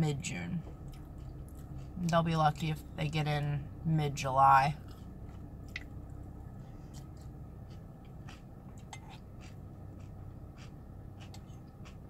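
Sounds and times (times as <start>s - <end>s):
low hum: 0.0s - 12.0s
chewing crunchy cereal: 0.8s - 2.1s, 4.8s - 12.0s.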